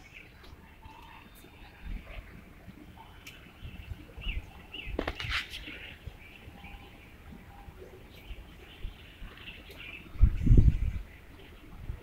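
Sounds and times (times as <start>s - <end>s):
small birds chirping: 0.0s - 12.0s
wings fluttering: 4.9s - 6.0s.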